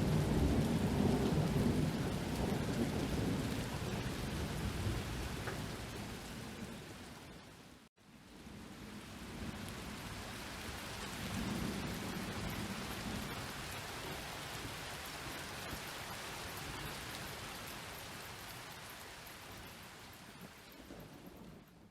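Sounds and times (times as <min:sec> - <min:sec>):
distant thunder rumble: 0:00.0 - 0:07.0, 0:20.4 - 0:21.9
steady rain falling: 0:00.0 - 0:21.9.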